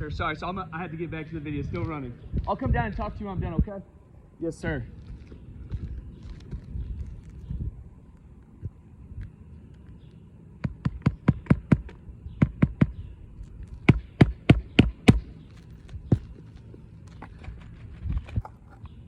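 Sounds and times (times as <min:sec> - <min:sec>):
hammer striking roofing nails: 0:13.8 - 0:15.3.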